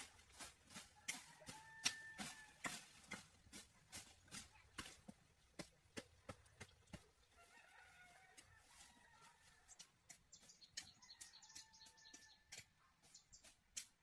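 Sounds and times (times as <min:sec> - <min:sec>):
chicken crowing: 0:01.1 - 0:02.6, 0:07.4 - 0:09.4
chicks chirping and peeping: 0:09.6 - 0:13.5.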